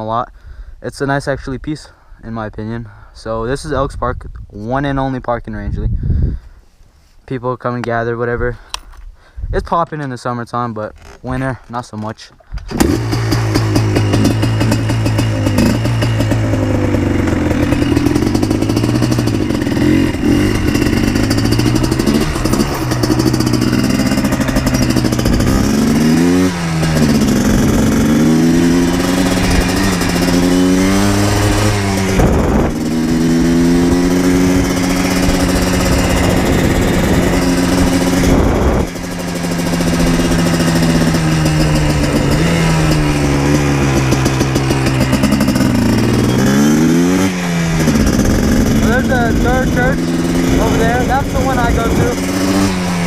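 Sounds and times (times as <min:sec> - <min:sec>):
two-stroke engine revving: 0:12.6 - 0:53.0.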